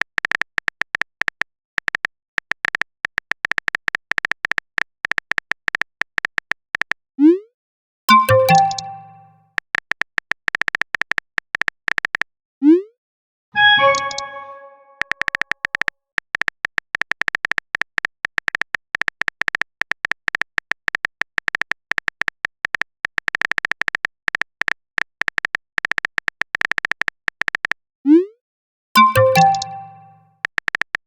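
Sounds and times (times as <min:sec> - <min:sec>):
chime: 0:08.1 - 0:09.4, 0:13.6 - 0:15.0, 0:29.0 - 0:30.3
short high typing beeps: 0:08.1 - 0:09.4, 0:13.6 - 0:15.4, 0:29.0 - 0:30.3.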